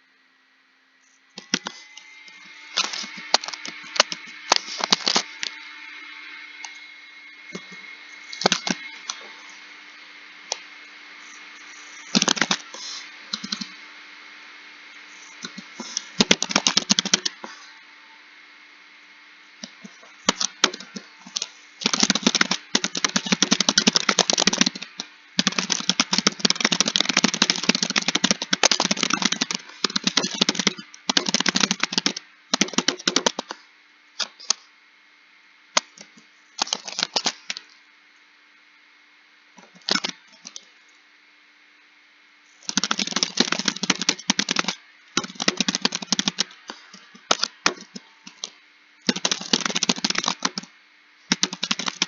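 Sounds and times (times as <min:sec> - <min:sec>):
typing on computer keyboard: 0:08.3 - 0:08.9, 0:12.1 - 0:12.6, 0:15.4 - 0:17.4, 0:20.3 - 0:33.5, 0:39.6 - 0:40.6, 0:42.7 - 0:48.5, 0:49.1 - 0:50.7, 0:51.3 - 0:52.0.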